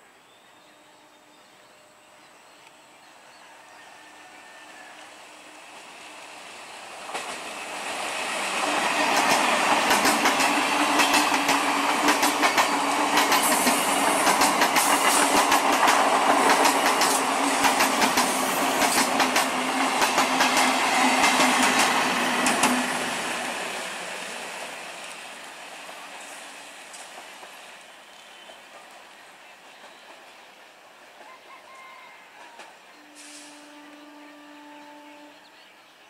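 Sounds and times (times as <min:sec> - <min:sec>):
train running noise: 0:04.1 - 0:35.4
wheels clicking over rail joints: 0:09.1 - 0:22.8.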